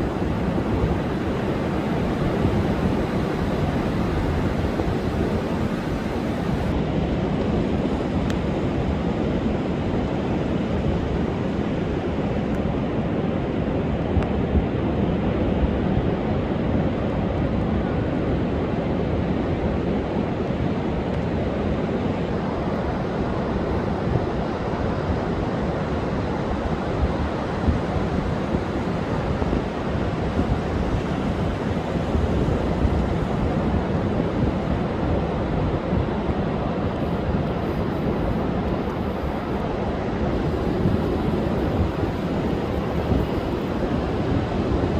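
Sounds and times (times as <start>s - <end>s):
wind buffeting microphone: 0.0s - 11.6s, 25.1s - 44.9s
surf pounding beach: 0.0s - 44.9s.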